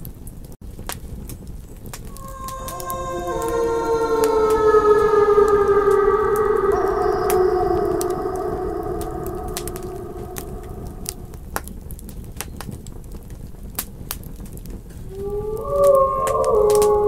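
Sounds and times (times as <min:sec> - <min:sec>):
wolves howling: 0:02.1 - 0:11.6, 0:15.1 - 0:17.0.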